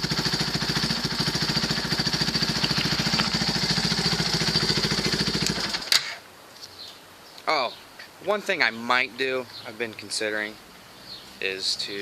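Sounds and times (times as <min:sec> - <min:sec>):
quad bike engine idling: 0:00.0 - 0:05.9.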